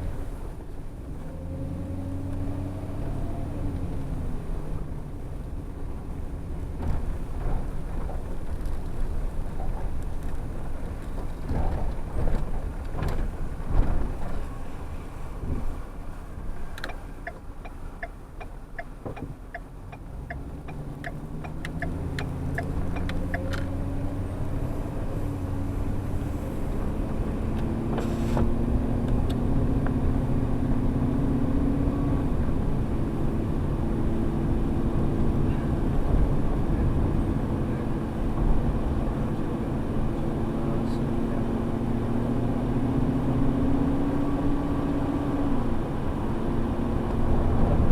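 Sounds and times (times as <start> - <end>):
road noise: 0.0 - 47.9
vehicle engine: 0.0 - 47.9
regular ticking: 16.8 - 23.6.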